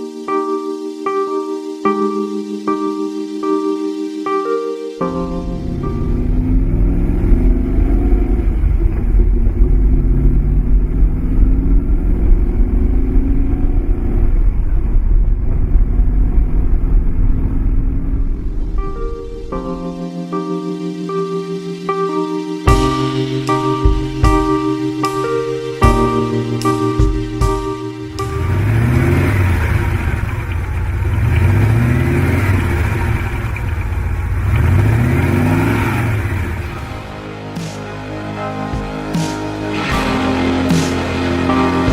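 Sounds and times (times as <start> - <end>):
engine deep rumble: 5.4 - 19.6, 25.8 - 41.9.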